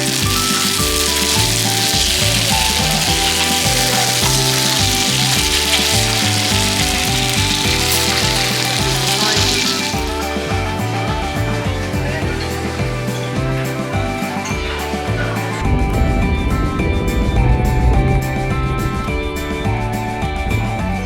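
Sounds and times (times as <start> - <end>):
food sizzling in a pan: 0.0 - 10.6
background music with bass line: 0.0 - 21.0.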